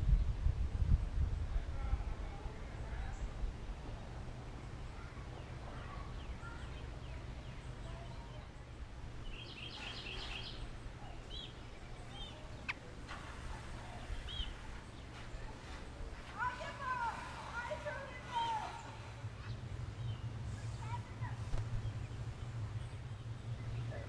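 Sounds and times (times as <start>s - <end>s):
steady low rumble: 0.0s - 24.0s
songbird calls: 4.9s - 16.6s.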